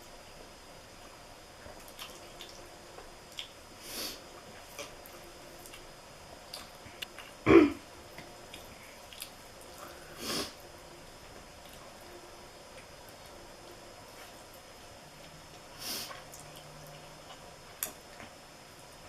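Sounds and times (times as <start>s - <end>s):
person sniffling: 9.9s - 10.6s.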